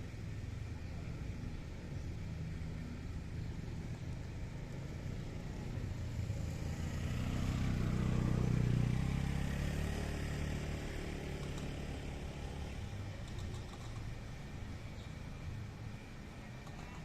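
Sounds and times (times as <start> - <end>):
vehicle engine passing by: 5.1 - 12.9.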